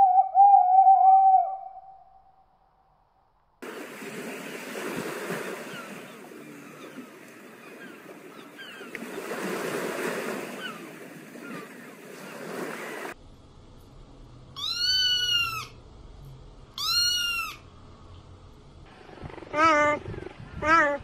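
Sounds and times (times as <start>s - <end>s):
rushing outdoor noise: 3.6s - 21.0s
kitten meowing: 14.6s - 15.7s, 16.8s - 17.6s.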